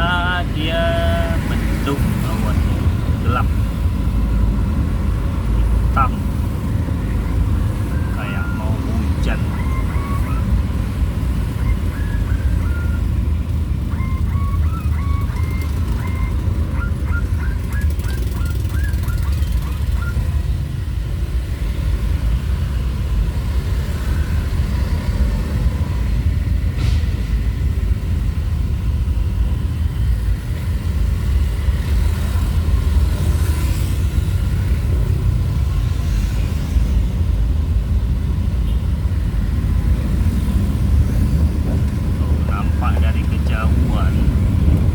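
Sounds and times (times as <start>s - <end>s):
motorcycle road rumble: 0.0s - 44.9s
wind buffeting: 36.8s - 44.9s.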